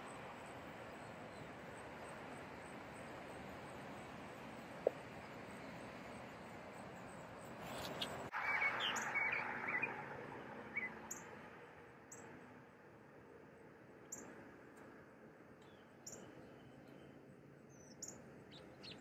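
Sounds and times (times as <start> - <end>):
steady background hiss: 0.0 - 19.0
bird chirps: 7.0 - 10.1, 10.7 - 11.4, 15.6 - 19.0.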